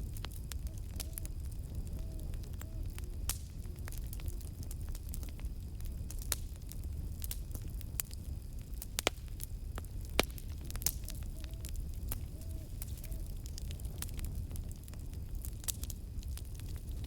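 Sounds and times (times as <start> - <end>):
low fire rumble: 0.0 - 17.0
wood crackling and popping: 0.0 - 17.0
faint owl hoots: 0.2 - 4.8, 10.6 - 14.0.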